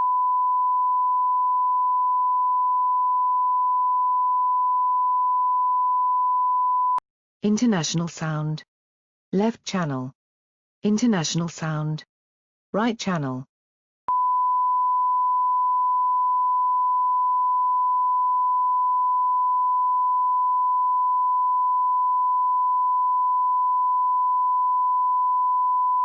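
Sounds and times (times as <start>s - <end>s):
sine-wave tone: 0.0s - 7.0s, 14.1s - 26.0s.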